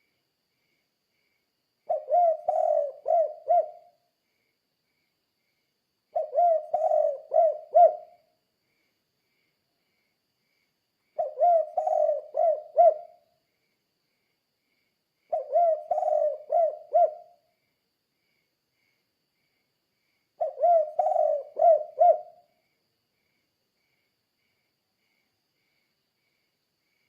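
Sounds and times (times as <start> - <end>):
dove cooing: 1.9 - 4.0, 6.2 - 8.2, 11.2 - 13.2, 15.3 - 17.4, 20.4 - 22.5.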